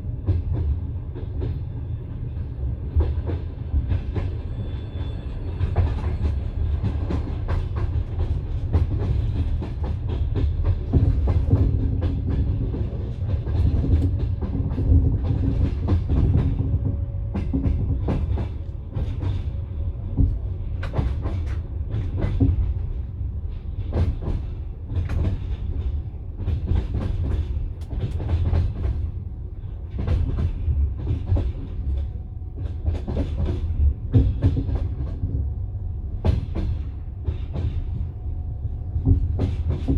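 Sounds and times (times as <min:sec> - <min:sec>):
train running gear rumble: 0:00.0 - 0:39.9
wheels clacking on rail joints: 0:05.6 - 0:35.4, 0:36.2 - 0:38.2.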